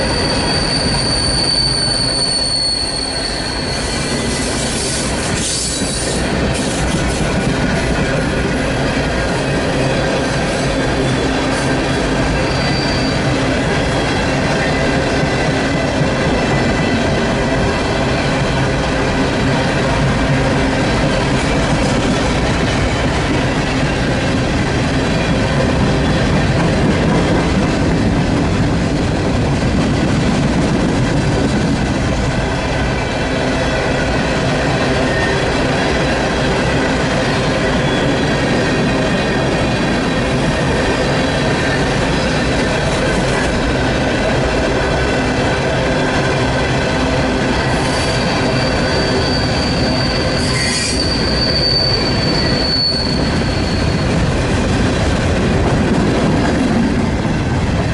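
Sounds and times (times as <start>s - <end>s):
high thin wheel squeal: 0.0s - 6.8s, 12.4s - 13.3s, 47.7s - 54.3s
train wheels rumbling on rails: 0.0s - 57.9s.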